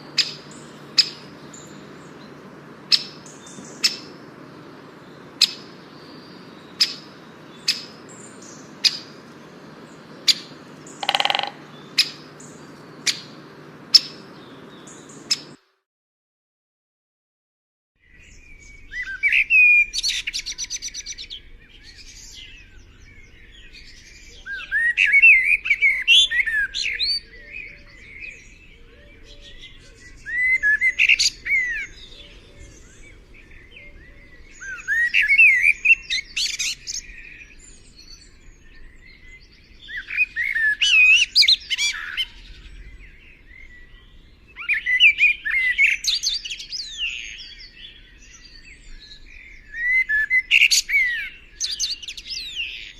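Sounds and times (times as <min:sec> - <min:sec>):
songbird warbling: 0:00.0 - 0:15.6.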